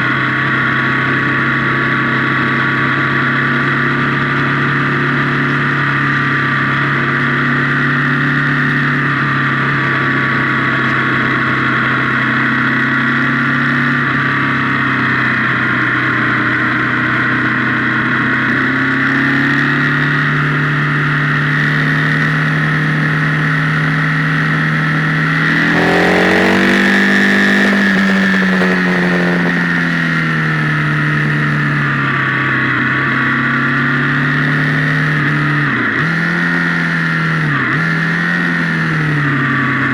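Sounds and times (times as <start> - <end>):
motorcycle engine running and revving: 0.0 - 39.9.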